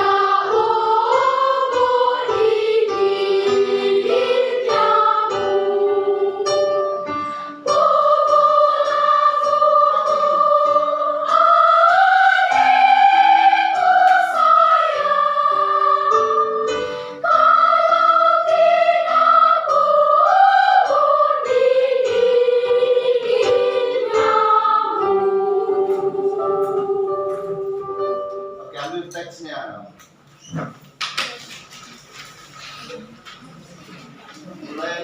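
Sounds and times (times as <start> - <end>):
high voices singing: 0.0 - 28.6.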